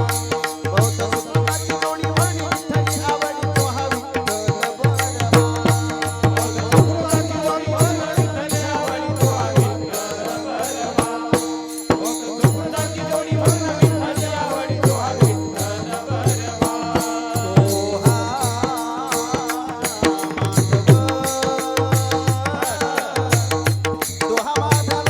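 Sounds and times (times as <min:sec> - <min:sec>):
hand drum beat: 0:17.5 - 0:25.0.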